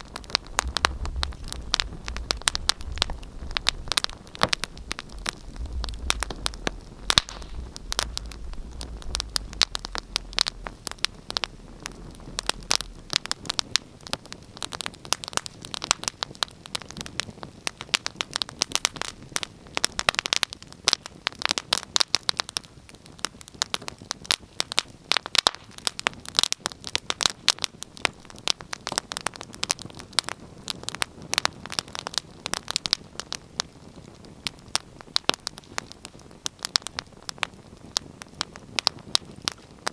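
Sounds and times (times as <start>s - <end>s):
faint low rumble: 0.0s - 14.8s
wood fire crackling: 0.0s - 39.9s.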